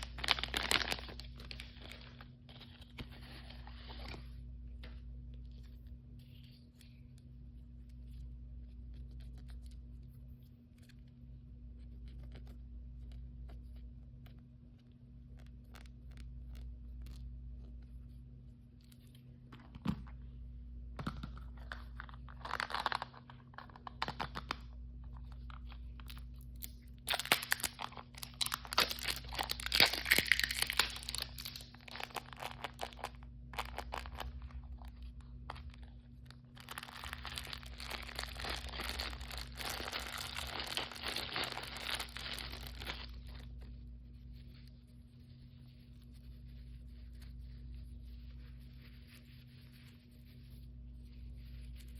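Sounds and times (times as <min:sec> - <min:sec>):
plastic packaging tearing and crinkling: 0:00.0 - 0:04.1, 0:22.0 - 0:24.5, 0:27.0 - 0:35.8, 0:36.5 - 0:43.5.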